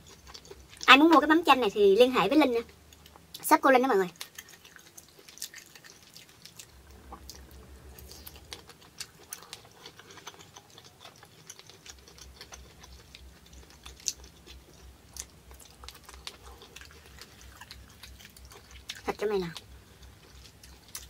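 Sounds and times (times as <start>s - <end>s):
chewing mouth clicks: 4.2s - 19.1s.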